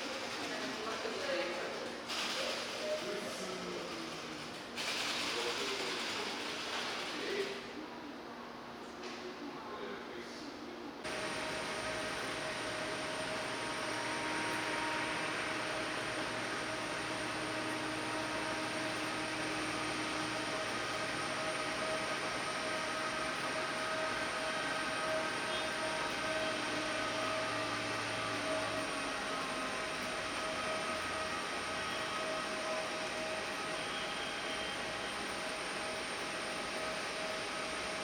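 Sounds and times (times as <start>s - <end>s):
jet engines running: 11.0s - 38.0s.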